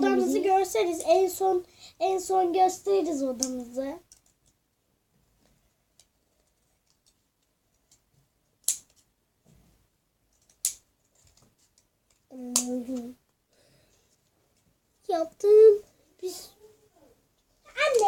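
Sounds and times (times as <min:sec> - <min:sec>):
sharp scissors snaps: 0:08.6 - 0:09.0, 0:12.5 - 0:12.7
scissors snipping: 0:12.5 - 0:12.7.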